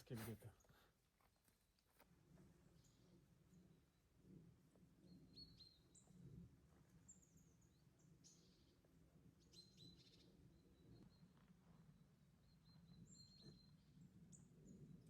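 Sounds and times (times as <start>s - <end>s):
small birds chirping: 5.0s - 15.0s.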